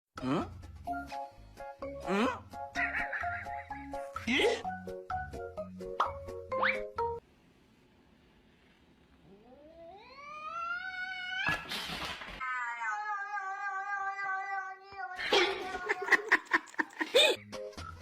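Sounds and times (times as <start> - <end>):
cat yowling: 2.8 - 3.8, 9.3 - 11.7, 12.4 - 16.3.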